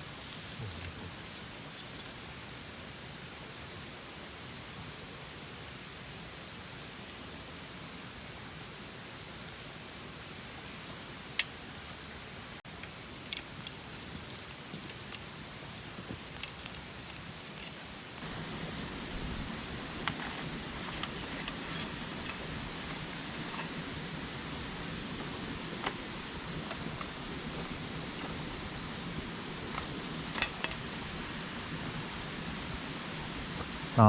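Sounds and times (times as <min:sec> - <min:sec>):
campfire burning with crackling pops: 0:00.0 - 0:18.2.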